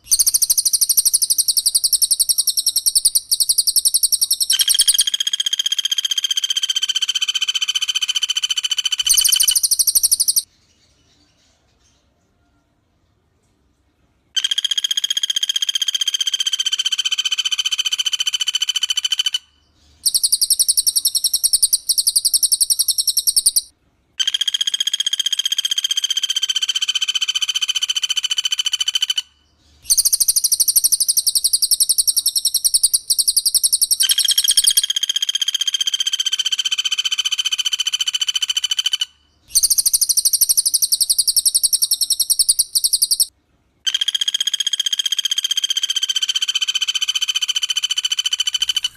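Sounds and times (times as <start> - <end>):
bird trilling: 0.0 - 5.8, 6.7 - 10.5, 20.1 - 23.7, 29.9 - 35.2, 38.5 - 43.3, 48.2 - 48.9.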